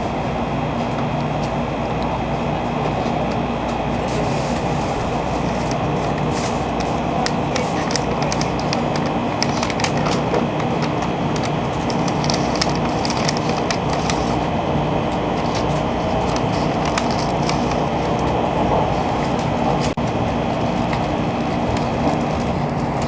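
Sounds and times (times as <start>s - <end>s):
train running rumble: 0.0s - 23.0s
sharp clicks and crackles: 5.5s - 14.5s, 15.1s - 23.0s.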